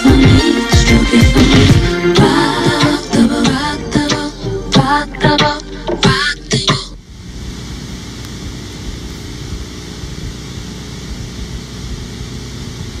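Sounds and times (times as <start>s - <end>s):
person singing: 0.0s - 7.0s.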